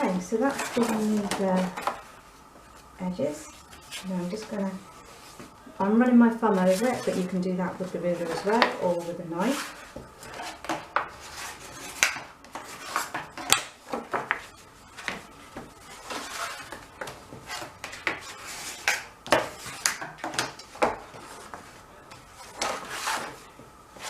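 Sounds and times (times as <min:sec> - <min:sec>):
card rubbing strokes: 0:22.2 - 0:23.4.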